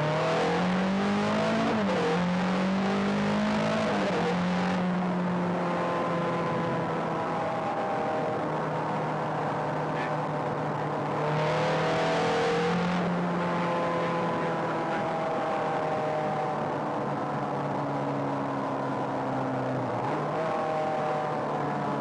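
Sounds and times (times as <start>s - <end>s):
sports car engine revving: 0.0s - 8.7s.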